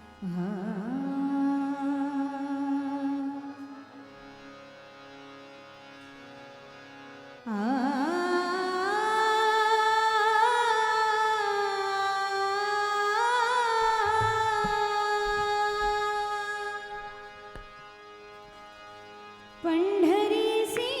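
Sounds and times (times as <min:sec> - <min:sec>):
woman singing with vibrato: 0:00.2 - 0:03.7, 0:07.6 - 0:17.1, 0:19.6 - 0:21.0.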